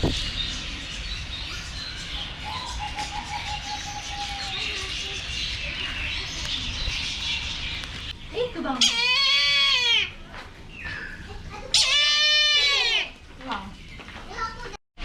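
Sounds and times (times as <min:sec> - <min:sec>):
birds chirping: 0:00.0 - 0:11.8.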